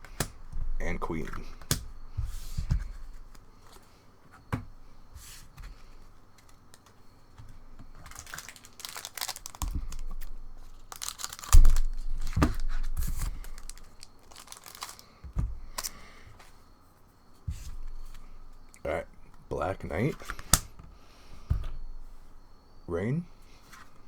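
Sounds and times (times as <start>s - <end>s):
foil wrapper tearing and crinkling: 7.9s - 15.2s.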